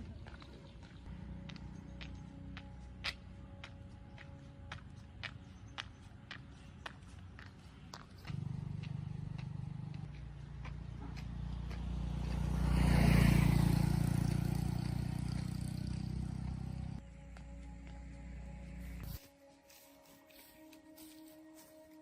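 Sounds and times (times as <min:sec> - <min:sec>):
vehicle engine passing by: 0:00.0 - 0:03.6, 0:07.2 - 0:19.2.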